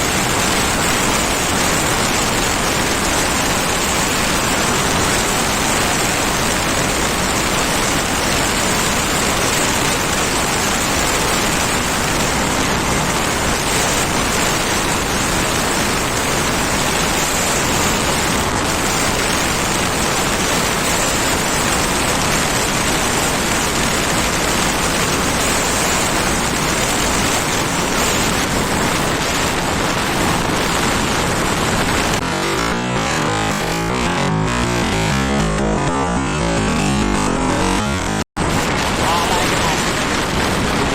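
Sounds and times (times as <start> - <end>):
wind rushing over microphone: 38.2 - 40.9.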